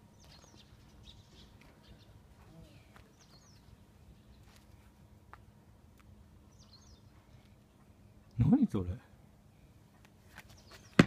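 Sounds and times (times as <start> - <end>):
small bird chirps: 0.1 - 4.5, 6.5 - 8.3.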